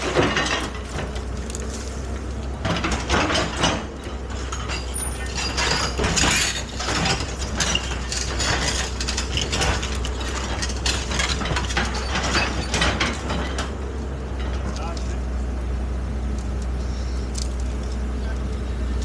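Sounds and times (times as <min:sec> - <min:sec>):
metallic clanking and rattling: 0:00.0 - 0:15.2
excavator engine drone: 0:00.0 - 0:19.0.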